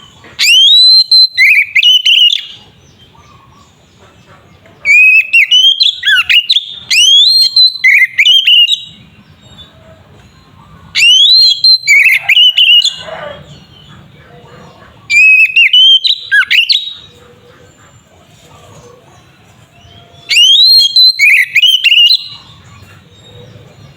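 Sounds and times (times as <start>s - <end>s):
bird singing whistled phrases: 0.4s - 2.6s, 4.9s - 9.0s, 11.0s - 13.2s, 15.1s - 17.1s, 20.2s - 22.5s.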